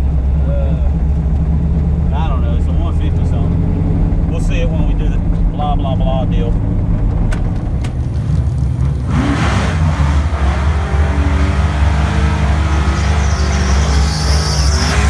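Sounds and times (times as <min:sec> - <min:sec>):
car engine rumbling: 0:00.0 - 0:15.0
broad rush of noise: 0:08.0 - 0:15.0.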